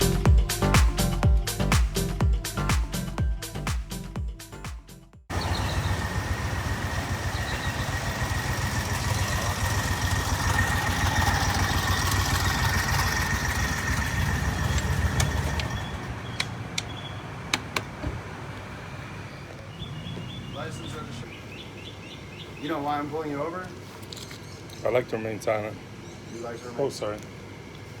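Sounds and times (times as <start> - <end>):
utility vehicle engine running: 5.3 - 21.2.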